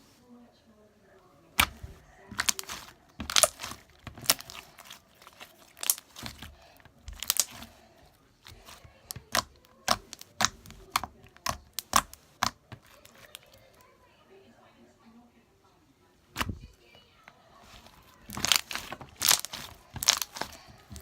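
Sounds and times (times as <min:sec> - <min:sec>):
slime popping and crackling: 0:01.6 - 0:13.6, 0:17.6 - 0:21.0.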